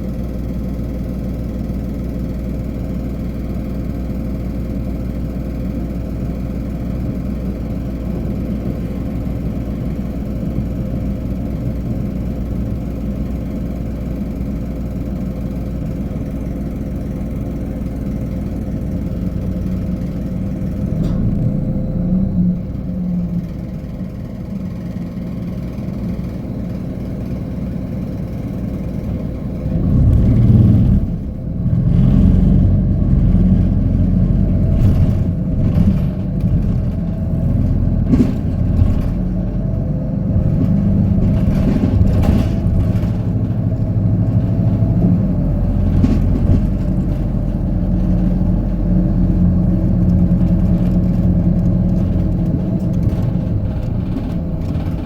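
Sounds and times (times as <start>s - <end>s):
bus diesel engine: 0.0s - 55.0s
rattles and knocks: 28.7s - 55.0s.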